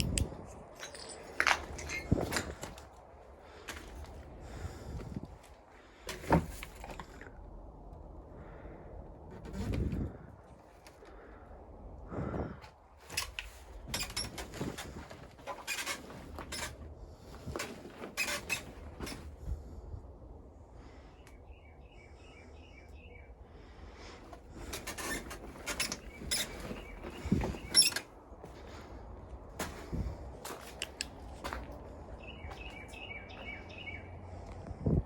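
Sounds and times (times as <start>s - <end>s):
steps and handling in rubble: 0.0s - 7.6s, 12.6s - 19.6s, 24.2s - 33.6s.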